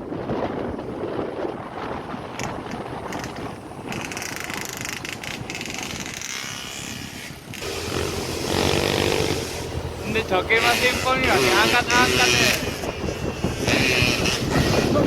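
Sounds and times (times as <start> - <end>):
wind buffeting microphone: 0.0 - 15.0
vehicle running noise: 5.4 - 15.0.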